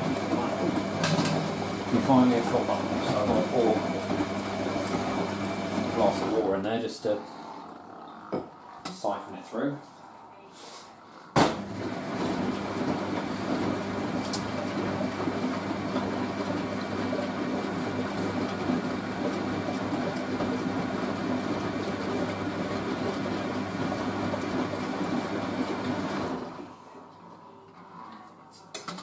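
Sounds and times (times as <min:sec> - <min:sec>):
water rushing into washing machine: 0:00.0 - 0:06.6, 0:11.4 - 0:26.7
washing machine hum: 0:00.0 - 0:09.2, 0:11.4 - 0:28.0.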